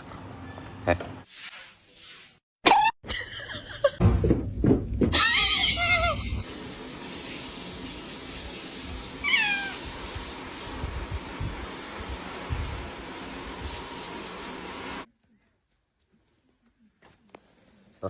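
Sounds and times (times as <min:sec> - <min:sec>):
steady hiss: 0:06.5 - 0:15.1
cat meowing: 0:09.2 - 0:09.8.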